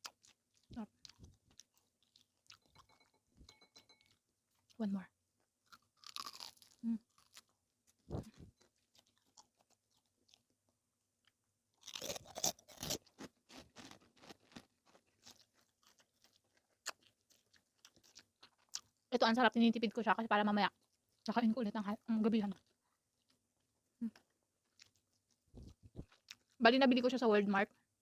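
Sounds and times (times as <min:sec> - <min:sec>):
person chewing crunchy food: 0:00.0 - 0:03.1, 0:05.6 - 0:10.6, 0:11.2 - 0:19.1, 0:24.1 - 0:26.6.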